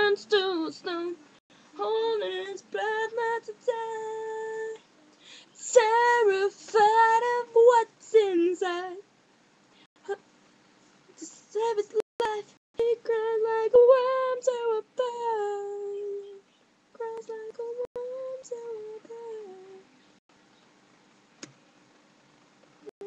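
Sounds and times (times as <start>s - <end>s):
woman singing wordless melody: 0.0s - 9.1s, 11.1s - 20.0s.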